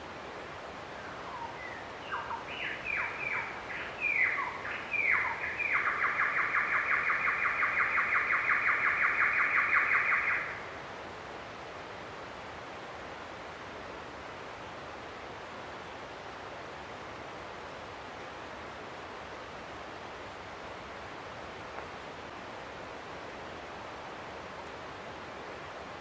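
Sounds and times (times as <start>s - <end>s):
steady background hiss: 0.0s - 26.0s
bird singing whistles and trill: 1.3s - 10.6s.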